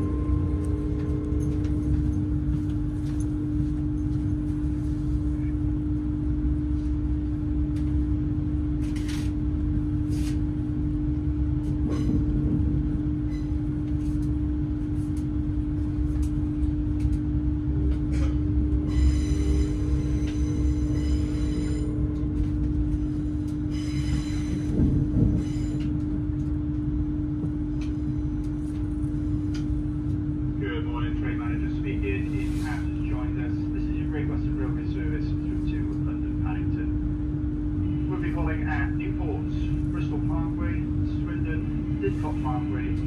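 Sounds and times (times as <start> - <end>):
high-pitched whine: 0.0 - 4.1, 17.5 - 26.0
passenger train running: 0.0 - 43.0.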